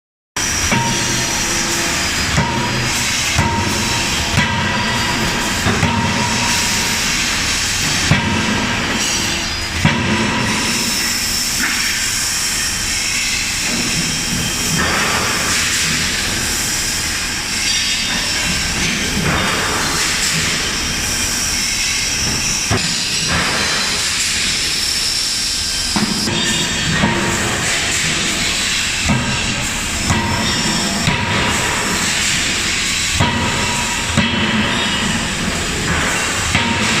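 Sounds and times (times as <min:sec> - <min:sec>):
forging hammer blows: 0:00.4 - 0:11.2.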